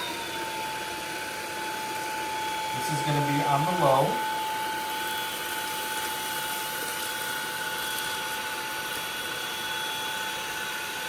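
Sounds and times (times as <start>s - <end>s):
stick vacuum running: 0.0s - 11.0s.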